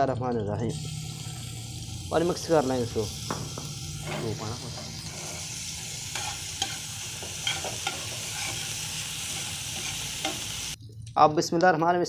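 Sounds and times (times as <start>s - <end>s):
paste sizzling in hot fat: 0.7s - 10.8s
spatula scraping and tapping pan: 3.3s - 10.5s.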